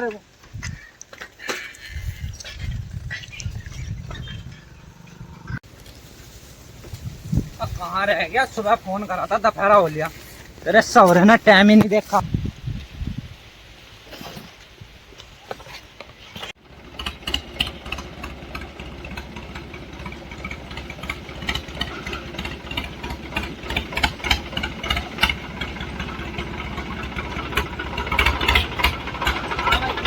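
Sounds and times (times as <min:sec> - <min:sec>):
tractor engine chugging: 0:02.0 - 0:12.2, 0:16.6 - 0:30.0.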